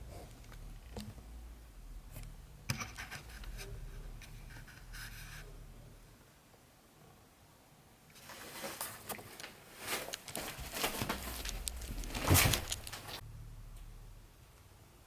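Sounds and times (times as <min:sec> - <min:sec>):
rustling of debris: 0:08.2 - 0:13.2.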